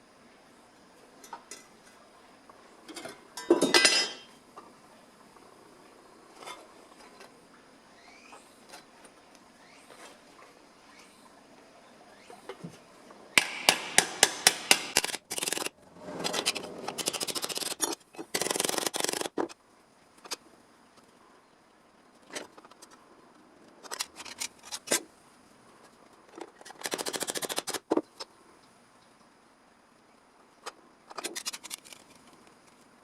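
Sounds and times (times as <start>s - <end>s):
hammer strikes on sheet metal: 13.4s - 15.0s.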